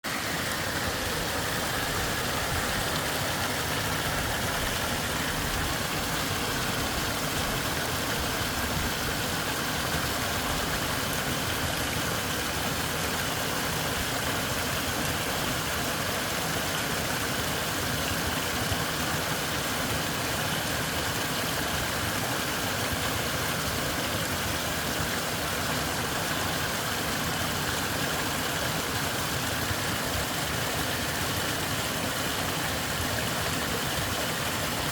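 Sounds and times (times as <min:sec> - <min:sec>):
rushing water: 0:00.0 - 0:34.9.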